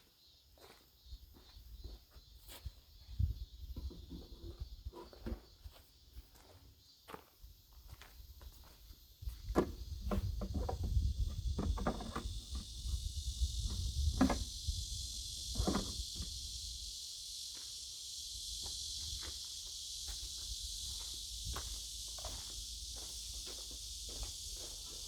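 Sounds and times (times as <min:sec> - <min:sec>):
high insect chorus: 0:00.0 - 0:25.0.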